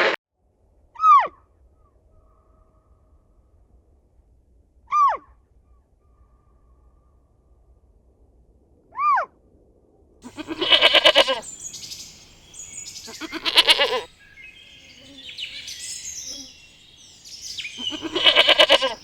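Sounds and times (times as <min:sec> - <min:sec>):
goat bleating: 0:10.2 - 0:16.7, 0:17.6 - 0:19.0
birds chirping and twittering: 0:10.2 - 0:19.0.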